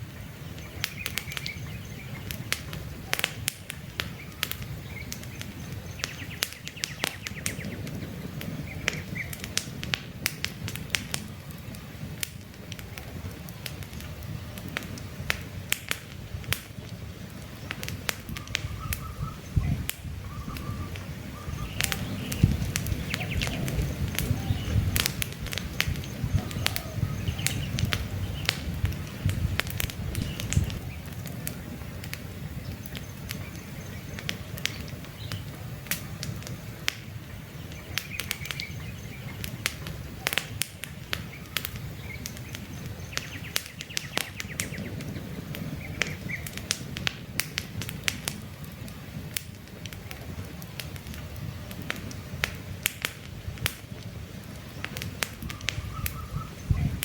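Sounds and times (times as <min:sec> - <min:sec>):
campfire crackling and popping: 0:00.0 - 0:57.0
low rumble of flames: 0:00.0 - 0:57.0
faint bird chirps: 0:18.3 - 0:24.9, 0:55.5 - 0:57.0.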